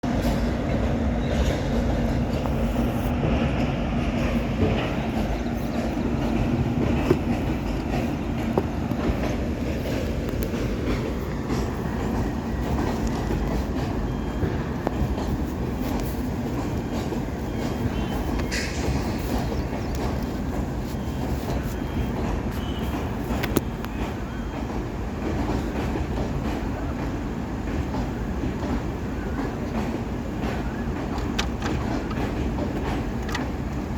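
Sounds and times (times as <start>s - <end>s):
train rumbling on rails: 0.0s - 33.9s
sharp clicks of rails: 29.7s - 33.9s.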